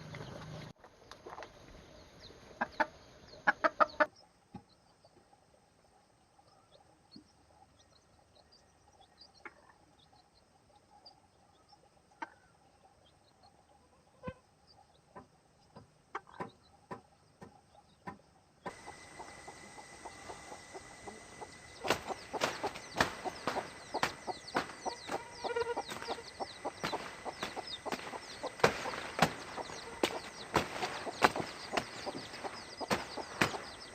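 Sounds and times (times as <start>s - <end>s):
chickens clucking: 2.5s - 4.7s, 15.1s - 33.9s.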